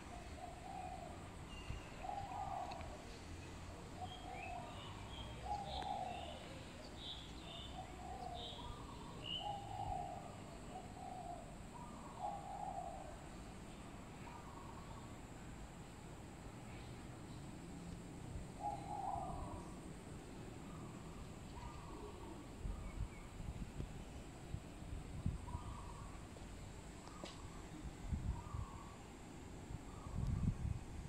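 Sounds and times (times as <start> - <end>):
bird low call: 0.0 - 3.1, 4.0 - 13.4, 18.6 - 19.8, 25.4 - 26.3, 27.0 - 29.1
birds chirping: 4.0 - 15.2, 25.4 - 26.3.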